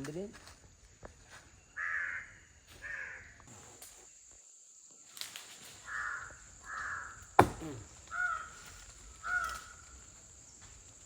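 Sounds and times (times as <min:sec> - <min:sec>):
crows cawing: 0:01.8 - 0:03.4, 0:05.8 - 0:07.2, 0:08.1 - 0:10.0.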